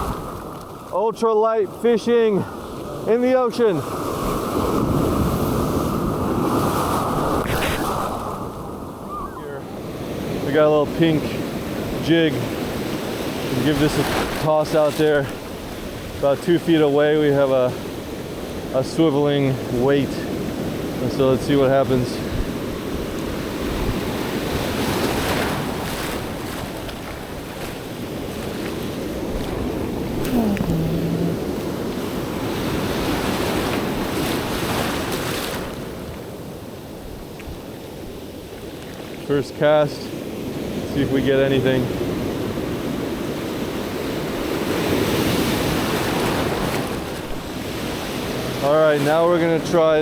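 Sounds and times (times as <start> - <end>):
ocean surf breaking on sand: 0.0 - 50.0
wind on microphone: 4.0 - 10.5, 22.2 - 35.0.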